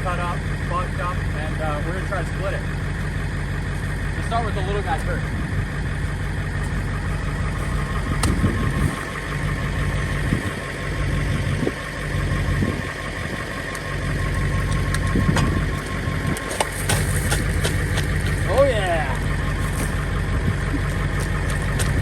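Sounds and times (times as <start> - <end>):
truck engine idling under load: 0.0 - 22.0
wood cracking: 13.5 - 22.0.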